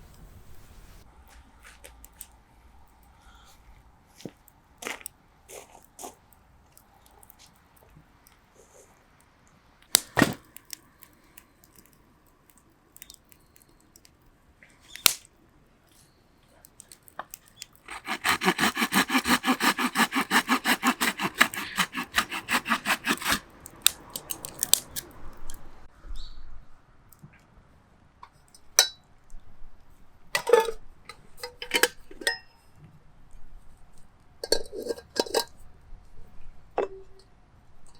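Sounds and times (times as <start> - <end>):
fast even rasping strokes: 17.9 - 23.5.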